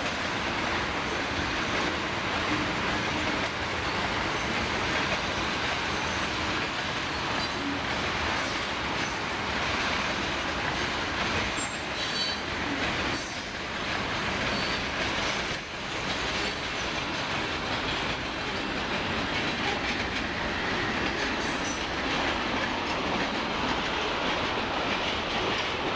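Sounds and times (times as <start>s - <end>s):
train wheels rumbling and clattering: 0.0s - 25.9s
faint high wheel squeals: 11.6s - 12.4s.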